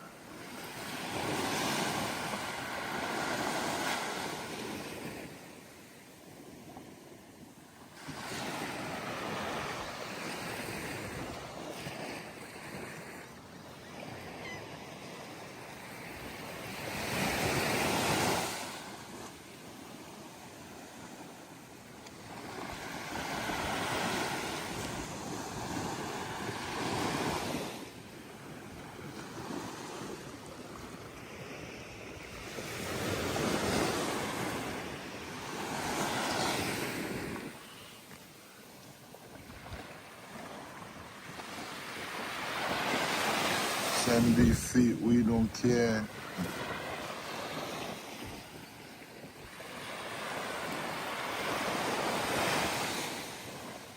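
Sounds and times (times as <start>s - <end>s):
waves breaking on beach: 0.0s - 53.9s.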